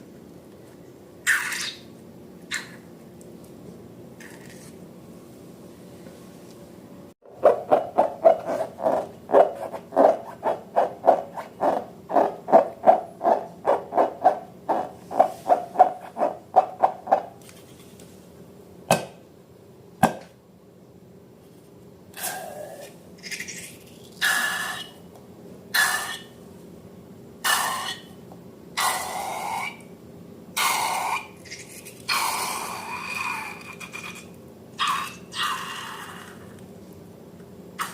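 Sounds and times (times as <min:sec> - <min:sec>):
squeaky slime squelches: 0:01.3 - 0:01.9.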